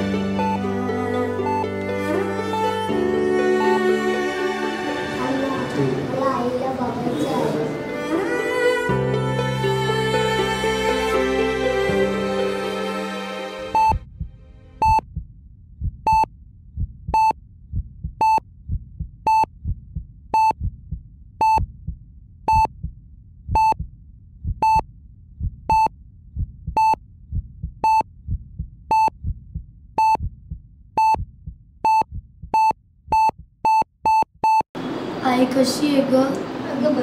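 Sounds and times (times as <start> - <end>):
patient monitor beeping: 0.4 - 1.9, 13.7 - 14.0, 14.8 - 15.0, 17.2 - 17.4, 18.2 - 18.4, 24.6 - 24.8, 25.7 - 25.9, 26.8 - 27.0, 27.8 - 28.0, 28.9 - 29.2, 30.0 - 30.2, 31.0 - 31.2, 31.8 - 34.7
low throbbing heartbeat: 13.8 - 34.7.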